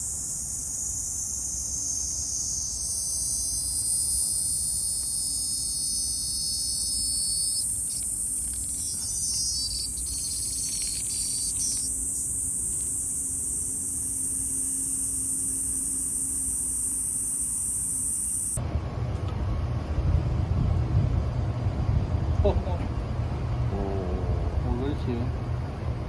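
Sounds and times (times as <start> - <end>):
cicadas buzzing chorus: 0.0 - 18.6
rapidly pulsing insect call: 0.0 - 18.6.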